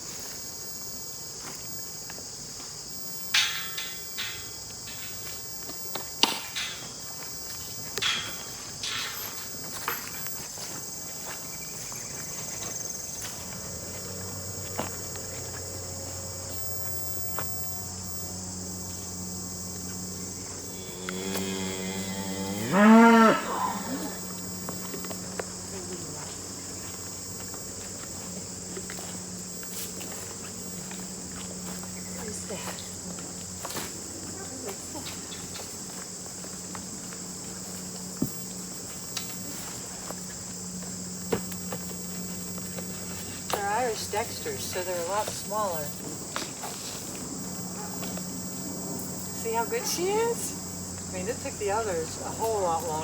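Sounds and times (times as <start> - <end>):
insects chirring: 0.0 - 53.0
cow mooing: 13.5 - 15.8, 20.7 - 24.3.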